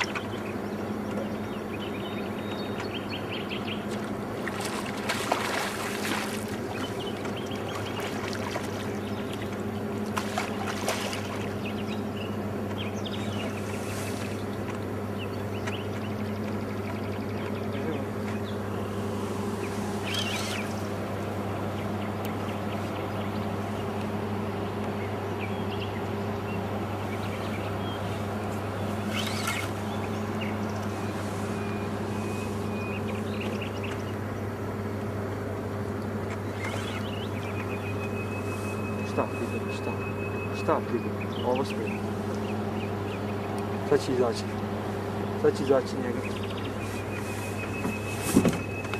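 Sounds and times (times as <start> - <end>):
bird chirps: 0.0 - 3.9, 11.3 - 21.0, 24.6 - 34.5, 36.4 - 48.9
boat motor humming: 0.0 - 48.9.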